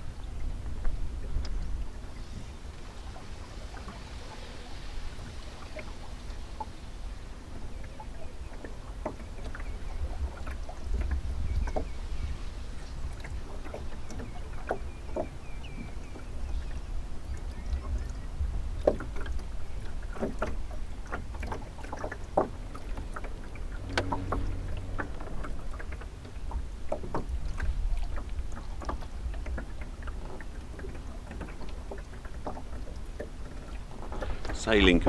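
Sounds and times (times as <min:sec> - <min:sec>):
low wind rumble: 0:00.0 - 0:35.0
water lapping against a hull: 0:00.0 - 0:35.0
short low tone: 0:23.8 - 0:25.3.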